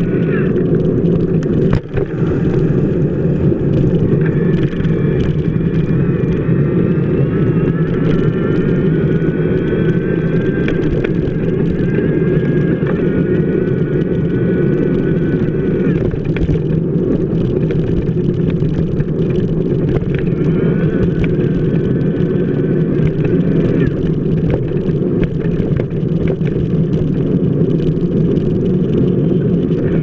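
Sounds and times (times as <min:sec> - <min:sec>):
bicycle wheel rolling on wet pavement: 0:00.0 - 0:30.0.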